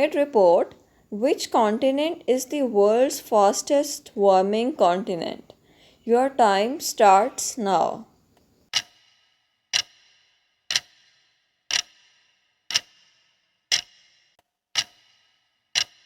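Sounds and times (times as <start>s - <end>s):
clock ticking: 8.7s - 9.1s, 9.7s - 13.1s, 13.7s - 16.0s.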